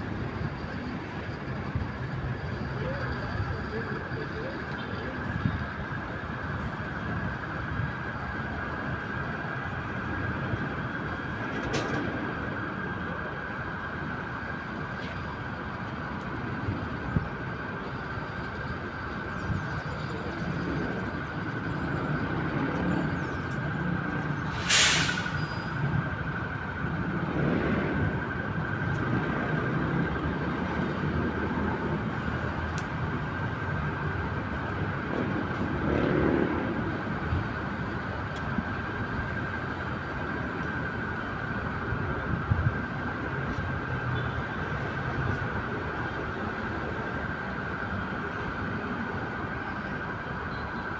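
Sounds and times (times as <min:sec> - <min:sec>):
city traffic rumble: 0:00.0 - 0:50.9
short loud hiss: 0:24.5 - 0:25.6.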